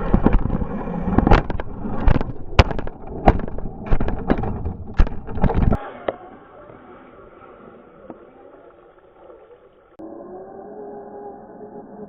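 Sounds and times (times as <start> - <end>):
rattling running noise: 0.0 - 5.8
rc truck thumps and knocks: 0.0 - 5.8.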